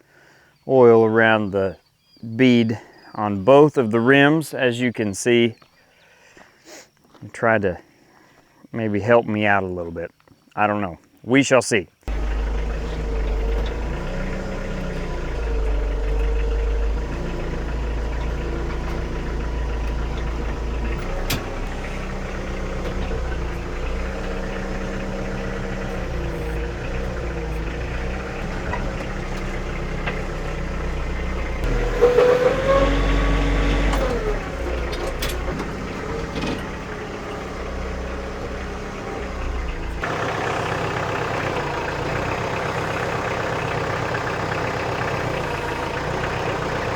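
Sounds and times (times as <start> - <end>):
engine idling: 12.1 - 46.9.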